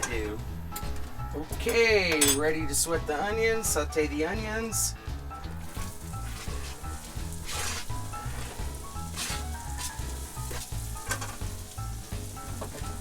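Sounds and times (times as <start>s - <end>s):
soft acoustic guitar music: 0.0s - 13.0s
onions sizzling in a pan: 5.1s - 13.0s.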